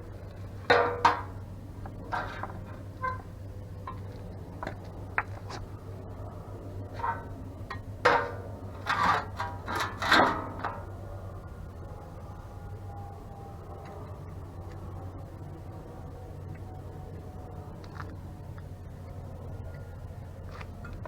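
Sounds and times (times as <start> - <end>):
steady low hum: 0.0 - 21.0
sharp metallic knocks: 0.7 - 1.4
metal tools clinking and scraping: 7.0 - 10.9.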